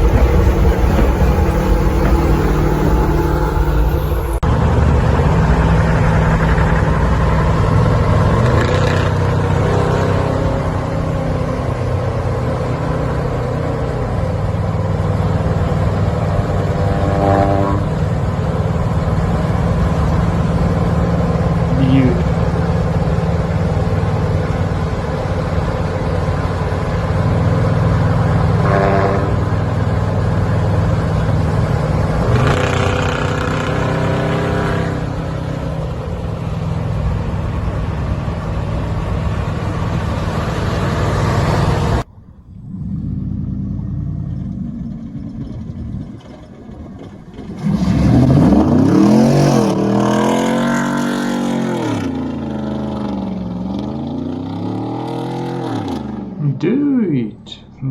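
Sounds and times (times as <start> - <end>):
engine revving hard: 0.0 - 13.5, 31.7 - 36.2, 47.6 - 56.4
pickup truck exhausts running: 0.0 - 57.9.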